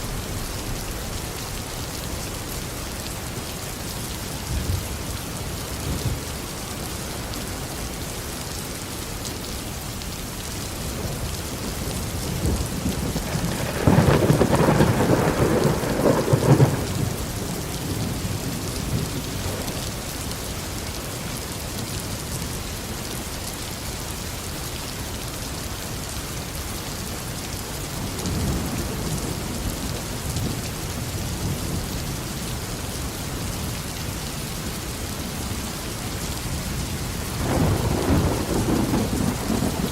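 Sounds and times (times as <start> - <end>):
rain falling steadily: 0.0 - 39.9
thunder clap and rumble: 11.0 - 19.8, 37.3 - 39.9.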